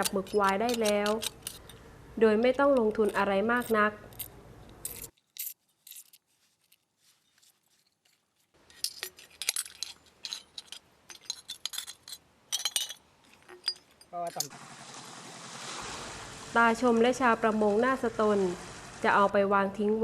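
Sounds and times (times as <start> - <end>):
glass bottles clinking: 8.7 - 14.5.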